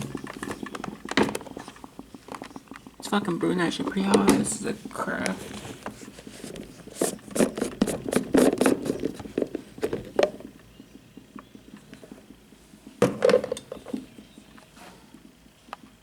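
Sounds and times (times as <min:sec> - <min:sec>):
coffee carafe knocks and rattles: 0:00.0 - 0:02.9, 0:07.3 - 0:10.5, 0:13.0 - 0:14.1.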